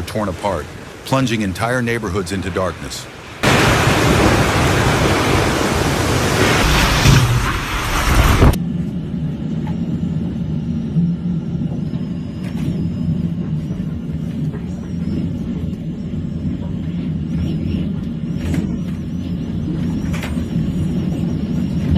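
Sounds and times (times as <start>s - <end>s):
hurricane wind rushing: 0.0s - 21.9s
low rumble: 3.4s - 21.9s.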